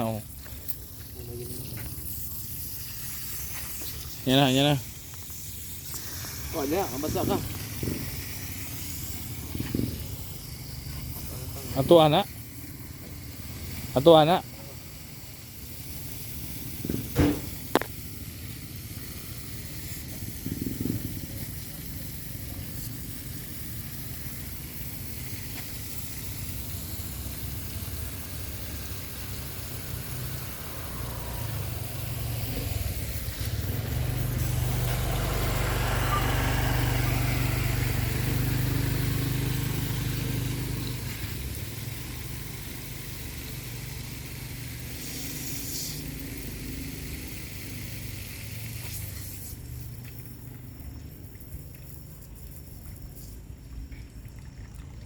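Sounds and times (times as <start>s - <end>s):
water spraying from pipe: 0.0s - 55.0s.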